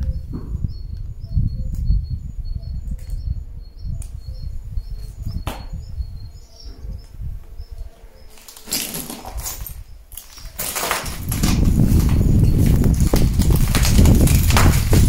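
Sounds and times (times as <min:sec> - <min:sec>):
small bird chirping: 0:00.0 - 0:10.6.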